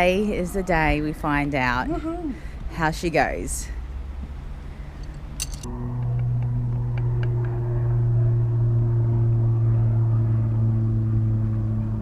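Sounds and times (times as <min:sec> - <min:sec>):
engine humming: 0:03.6 - 0:12.0.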